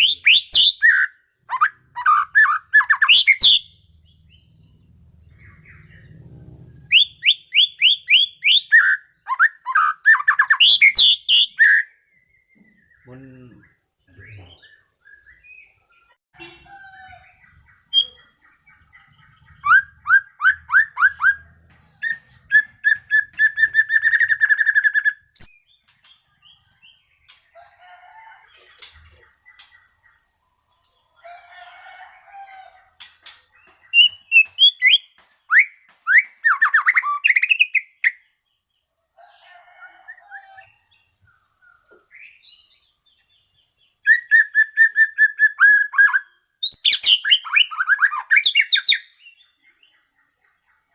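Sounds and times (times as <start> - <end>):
bird singing fast repeated notes: 0.0 - 16.2, 17.4 - 27.0, 33.0 - 38.3.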